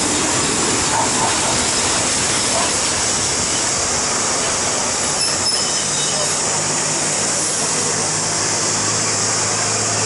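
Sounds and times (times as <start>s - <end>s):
train wheels on rails: 0.0s - 10.0s.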